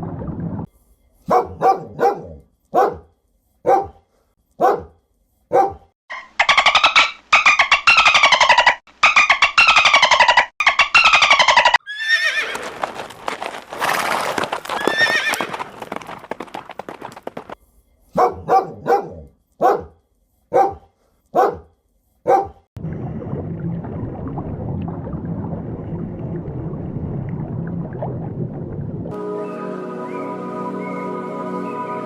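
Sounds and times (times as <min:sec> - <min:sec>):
horse whinnying: 0:11.0 - 0:12.9, 0:13.8 - 0:17.5.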